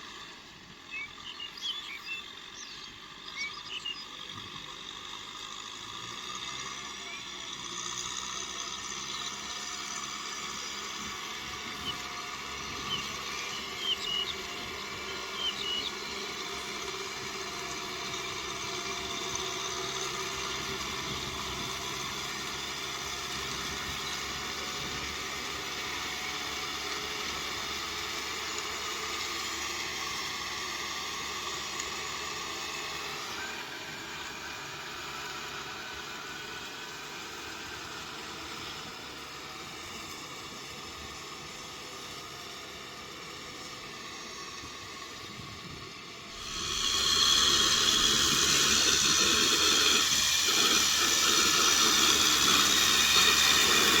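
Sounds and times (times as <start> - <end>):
tractor diesel engine running: 0.0 - 54.0
loud hissing rushing noise: 46.1 - 54.0.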